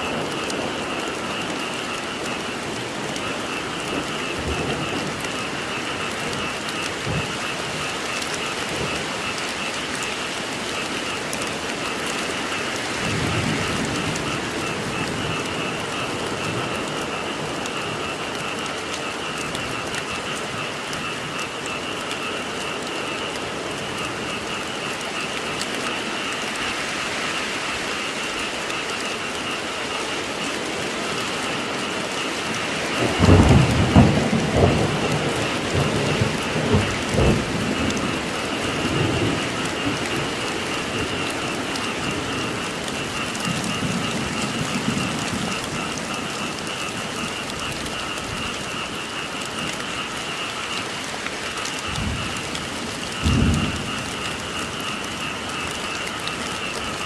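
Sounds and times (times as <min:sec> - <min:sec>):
thunder rumbling and cracking: 0:00.0 - 0:26.7, 0:28.2 - 0:50.8, 0:51.4 - 0:57.0
frog chorus: 0:00.0 - 0:57.0
rain falling: 0:00.0 - 0:57.0.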